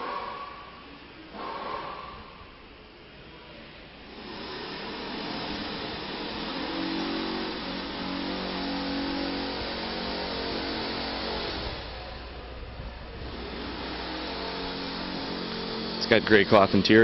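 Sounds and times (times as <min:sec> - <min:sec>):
truck engine revving: 0:04.1 - 0:17.0.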